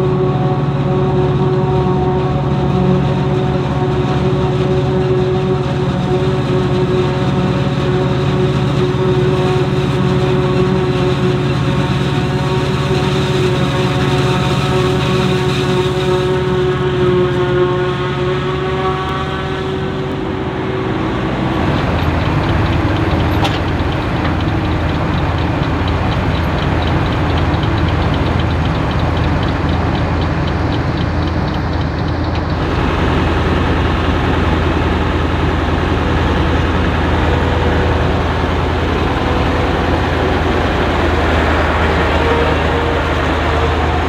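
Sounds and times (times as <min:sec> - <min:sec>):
diesel farm machinery running: 0:00.0 - 0:44.0
fast even ticking: 0:21.6 - 0:44.0.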